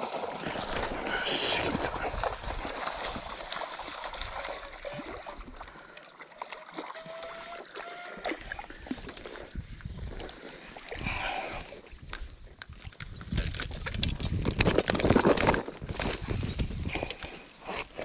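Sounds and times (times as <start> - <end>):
running water rushing: 0.0 - 9.6.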